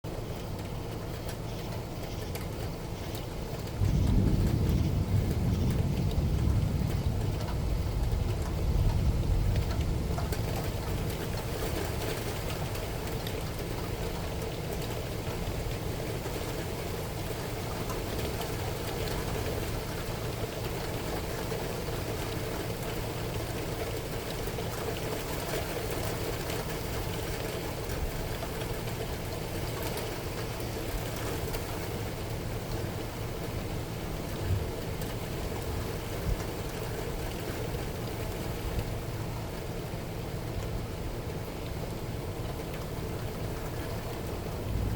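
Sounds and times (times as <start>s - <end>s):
steady rainfall: 0.0s - 44.9s
low roll of thunder: 3.7s - 11.6s, 43.2s - 44.9s.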